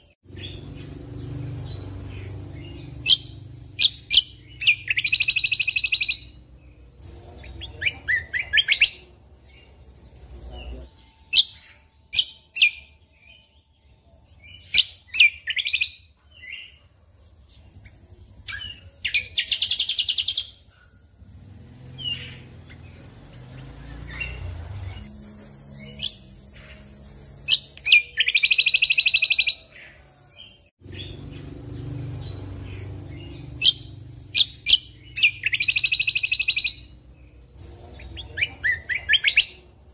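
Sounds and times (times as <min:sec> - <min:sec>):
bird fast trill: 0:00.0 - 0:39.9
bird chirping and whistling: 0:01.7 - 0:06.4, 0:11.3 - 0:13.6, 0:14.4 - 0:16.8, 0:18.4 - 0:20.7, 0:21.9 - 0:25.1, 0:25.8 - 0:30.0, 0:32.7 - 0:37.0.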